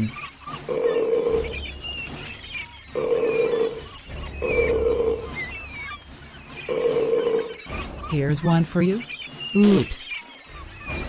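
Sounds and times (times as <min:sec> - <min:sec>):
seagull cries: 0:00.0 - 0:01.6, 0:02.9 - 0:06.0, 0:06.7 - 0:07.8.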